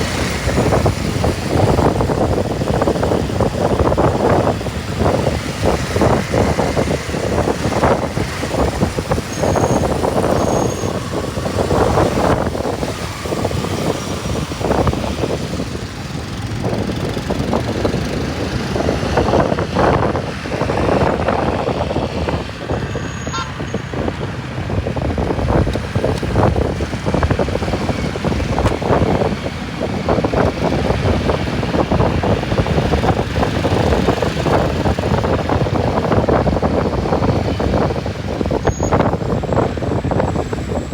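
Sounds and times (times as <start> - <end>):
motorcycle engine running: 0.0 - 21.8
road noise: 0.0 - 40.9.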